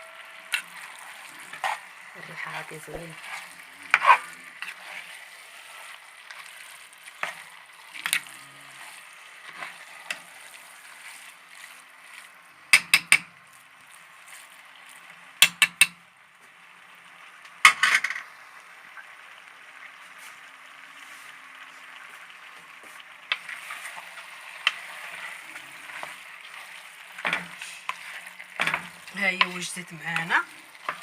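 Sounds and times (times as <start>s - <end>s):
greens sizzling in a pan: 0.0s - 31.0s
utensil knocking against a pan: 12.8s - 13.3s.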